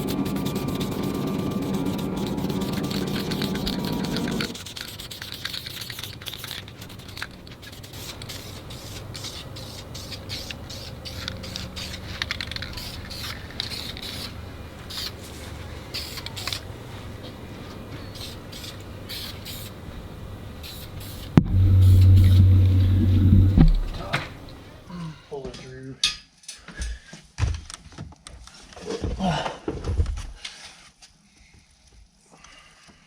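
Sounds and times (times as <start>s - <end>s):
music: 21.4s - 24.1s
steady low hum: 21.4s - 24.8s.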